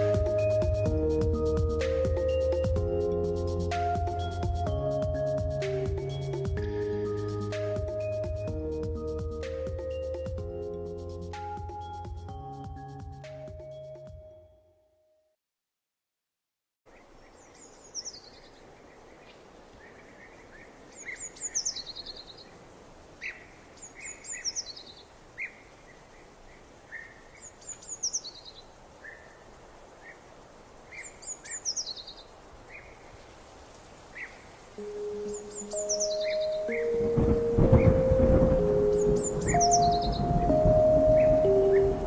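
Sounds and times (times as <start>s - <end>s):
bird high descending song: 0.0s - 10.7s, 34.8s - 42.0s
steady background hiss: 0.0s - 13.5s, 16.9s - 42.0s
birds lower chirps: 0.0s - 14.6s, 16.9s - 42.0s.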